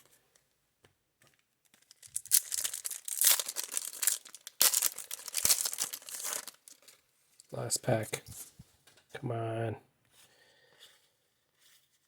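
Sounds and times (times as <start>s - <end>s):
card pack wrapper tearing: 1.8s - 6.9s.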